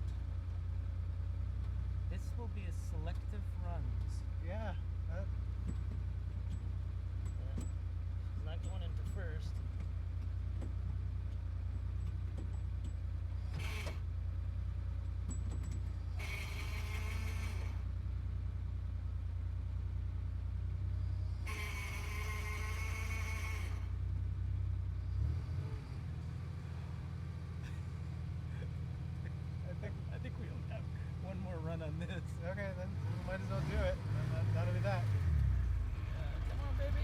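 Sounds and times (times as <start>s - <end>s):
sports car engine idling: 0.0s - 37.0s
harsh high-pitched engine bursts: 13.4s - 14.1s, 16.0s - 17.9s, 21.3s - 24.0s.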